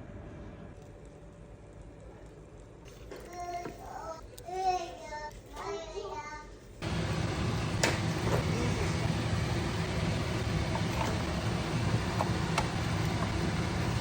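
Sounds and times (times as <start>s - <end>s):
noisy hiss: 6.6s - 14.0s
low mechanical rumble: 6.8s - 14.0s.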